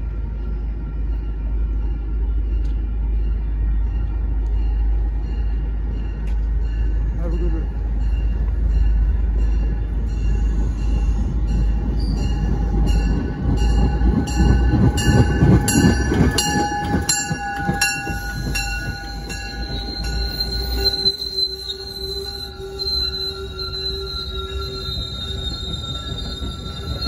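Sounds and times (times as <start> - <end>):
train rumble and wheel noise: 0.0 - 27.0
high brake squeal: 15.7 - 27.0.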